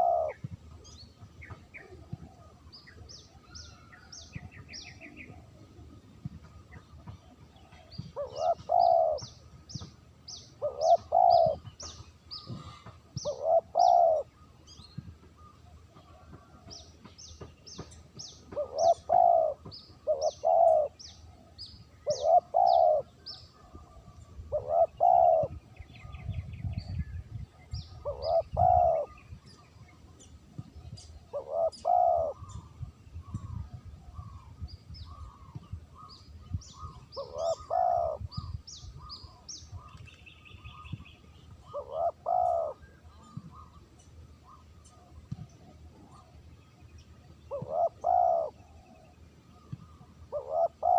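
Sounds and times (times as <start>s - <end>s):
dove cooing: 0.0s - 0.5s, 1.5s - 2.7s, 7.6s - 9.4s, 10.4s - 11.8s, 12.4s - 14.4s, 18.5s - 26.1s, 27.9s - 29.2s, 31.2s - 33.6s, 36.7s - 39.4s, 41.6s - 43.8s, 47.5s - 49.1s, 49.8s - 50.9s
small birds chirping: 0.0s - 50.9s.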